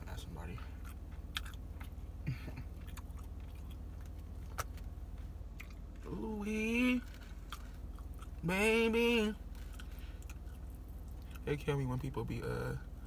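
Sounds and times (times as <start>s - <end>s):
steady low hum: 0.0s - 13.0s
man chewing food: 0.5s - 6.1s, 7.0s - 11.5s.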